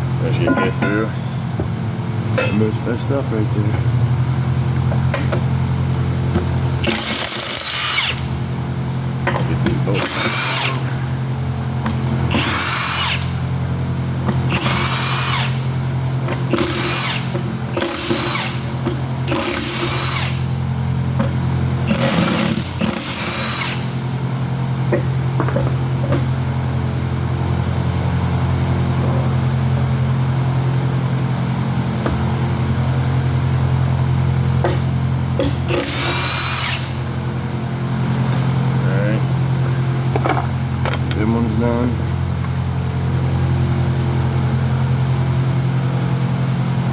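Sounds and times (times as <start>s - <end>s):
low machine hum: 0.0s - 46.9s
power tool bursts: 6.8s - 8.3s, 9.9s - 10.8s, 16.5s - 18.6s, 21.9s - 23.9s, 35.7s - 37.0s.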